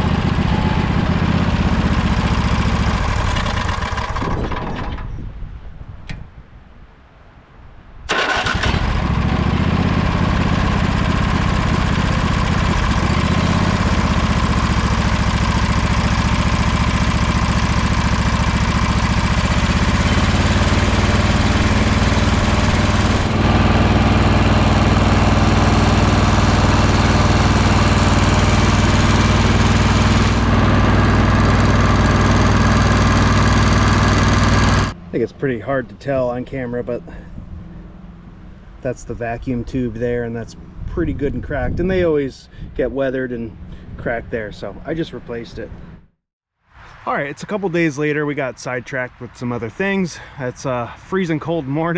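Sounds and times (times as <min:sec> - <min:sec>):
lawn tractor engine running: 0:00.0 - 0:05.0, 0:08.1 - 0:38.7.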